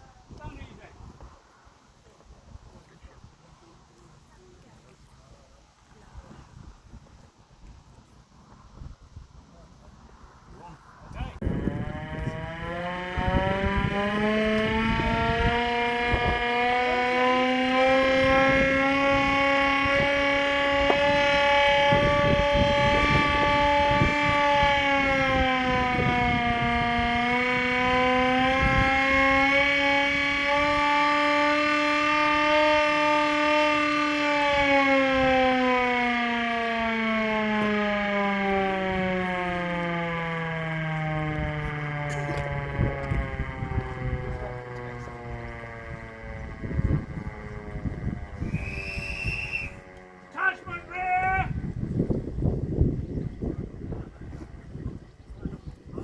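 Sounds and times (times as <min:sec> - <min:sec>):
air-raid siren wailing: 0:11.2 - 0:55.9.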